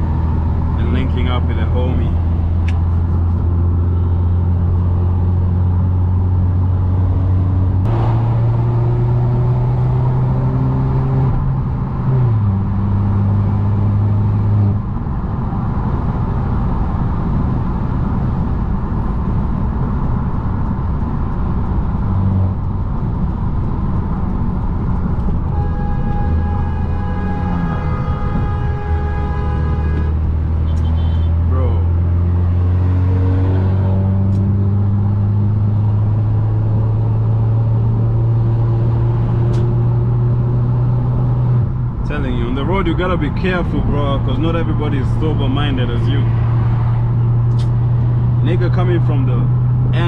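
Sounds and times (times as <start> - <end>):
car engine drone: 0.0 - 50.0
tyre and road noise: 0.0 - 50.0.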